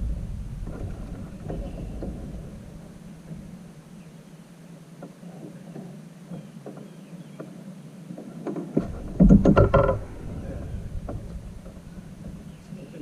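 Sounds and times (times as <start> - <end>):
low steady rumble: 0.0 - 5.0, 8.8 - 13.0
knocks and thumps on plastic kayak: 8.2 - 12.8.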